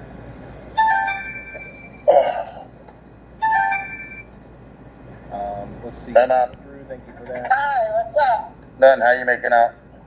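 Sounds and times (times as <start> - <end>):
phone ringtone chiming: 0.8 - 2.1, 3.4 - 4.3.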